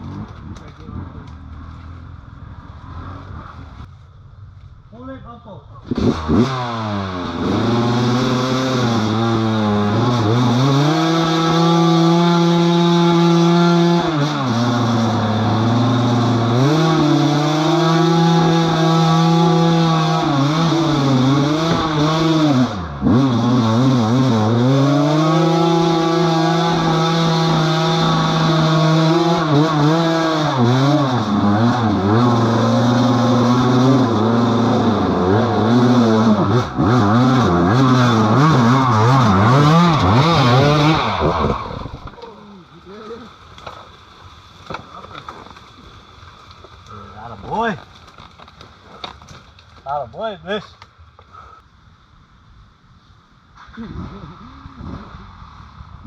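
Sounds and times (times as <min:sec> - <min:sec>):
off-road vehicle engine revving: 0:05.8 - 0:42.3.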